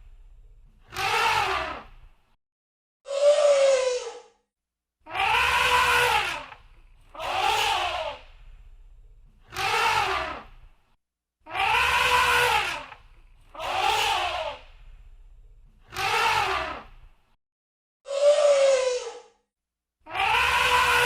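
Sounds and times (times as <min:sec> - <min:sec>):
elephant trumpeting: 0:05.1 - 0:08.2, 0:11.5 - 0:13.0, 0:20.1 - 0:21.0
low rumble: 0:08.2 - 0:09.4, 0:14.7 - 0:15.8.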